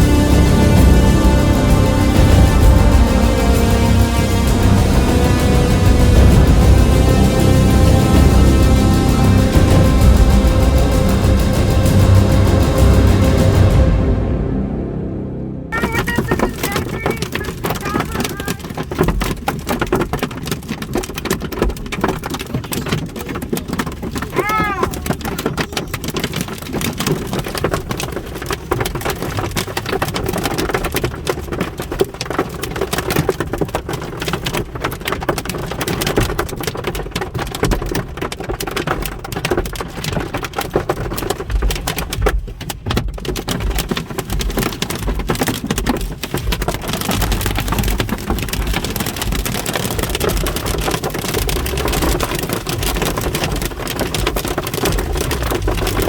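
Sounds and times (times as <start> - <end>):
hail and heavy rain pelting: 0.0 - 14.4, 15.7 - 56.0
low rumbling: 0.0 - 16.5, 46.4 - 56.0.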